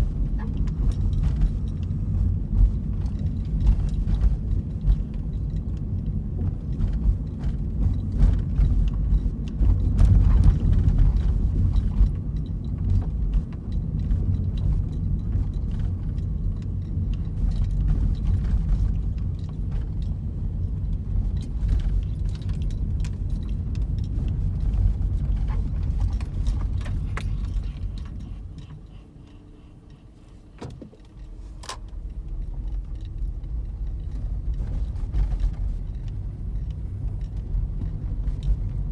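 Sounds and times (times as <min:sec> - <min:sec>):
road rumble inside car: 0:00.0 - 0:38.9
faint steady hum: 0:13.7 - 0:38.9.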